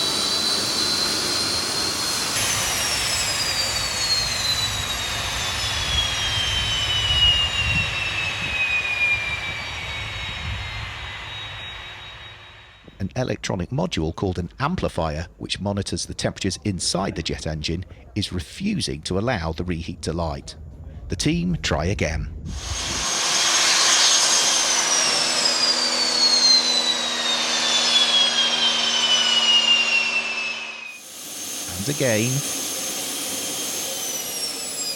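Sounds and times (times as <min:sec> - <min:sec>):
jet engine roar with high whine: 0:00.0 - 0:13.0, 0:22.4 - 0:34.9.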